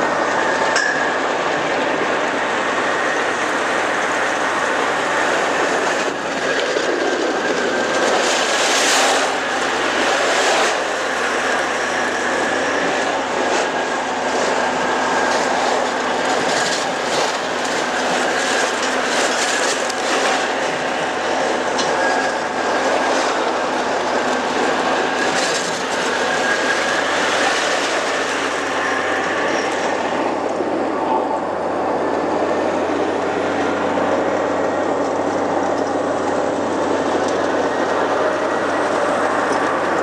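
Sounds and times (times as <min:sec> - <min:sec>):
wheels clicking over rails: 0:00.0 - 0:30.9
faint steady whine: 0:00.0 - 0:40.0
train rolling on track: 0:00.0 - 0:40.0.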